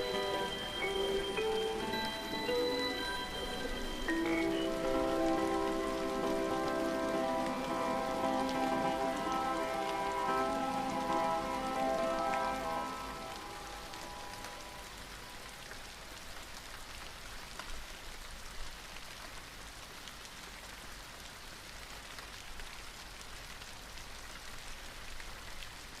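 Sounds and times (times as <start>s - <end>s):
slowed reverbed song: 0.0s - 15.6s
steady rain falling: 0.0s - 26.0s.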